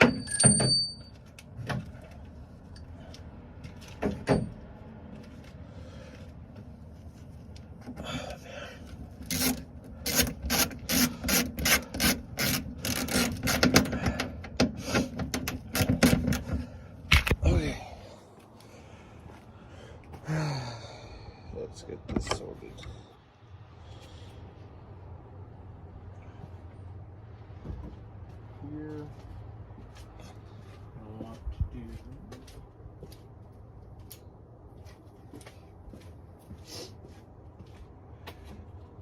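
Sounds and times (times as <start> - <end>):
ratchet wrench rasping: 9.2 - 14.4, 15.4 - 16.4.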